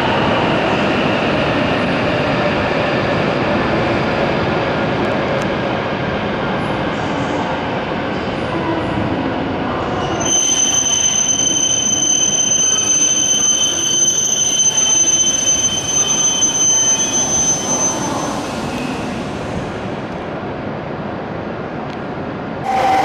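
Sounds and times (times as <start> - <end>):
train rumbling: 0.0 - 23.0
high-pitched squeal: 10.2 - 19.6, 22.6 - 23.0.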